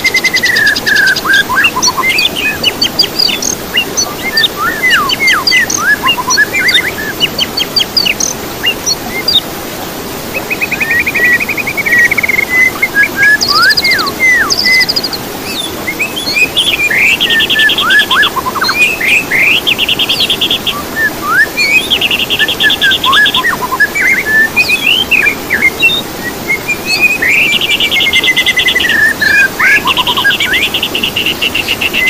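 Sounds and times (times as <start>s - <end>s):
bird chirps: 0.0s - 9.4s, 10.4s - 32.0s
steady background hiss: 0.0s - 32.0s
downward-sweeping bird whistles: 3.4s - 7.1s, 10.4s - 19.6s, 20.7s - 32.0s.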